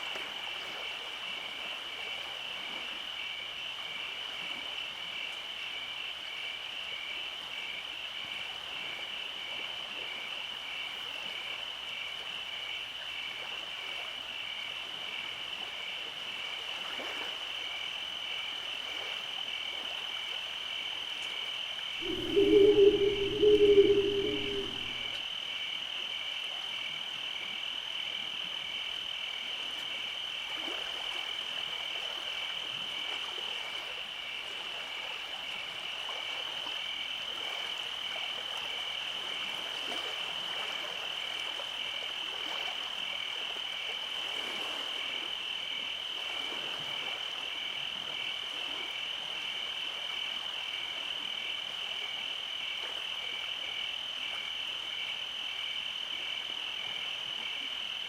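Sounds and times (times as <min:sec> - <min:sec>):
frogs calling: 0:22.0 - 0:25.2
insects chirping: 0:22.0 - 0:25.2.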